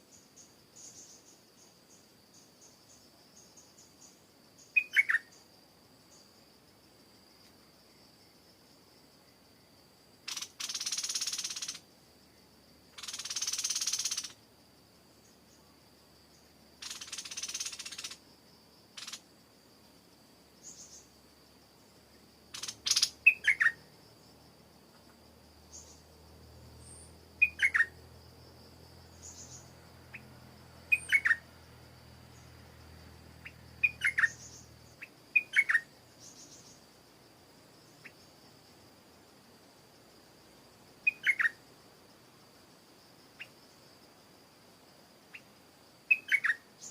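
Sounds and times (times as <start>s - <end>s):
high insect whine: 0.0s - 46.9s
bulbul sharp calls: 4.6s - 5.4s, 10.3s - 11.8s, 13.0s - 14.4s, 16.8s - 18.2s, 19.0s - 19.2s, 22.5s - 23.9s, 27.4s - 28.0s, 29.2s - 30.3s, 30.9s - 31.5s, 33.4s - 36.8s, 41.1s - 41.6s, 46.1s - 46.9s.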